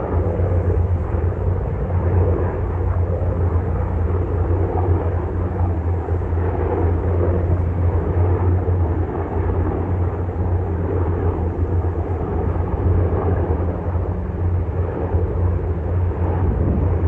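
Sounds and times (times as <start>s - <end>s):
helicopter rotor and turbine noise: 0.0s - 17.0s.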